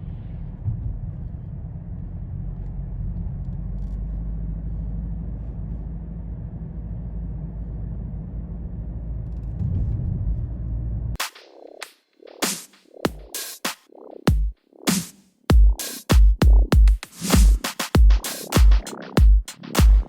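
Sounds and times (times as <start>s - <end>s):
sports car engine rumble: 0.0s - 11.2s.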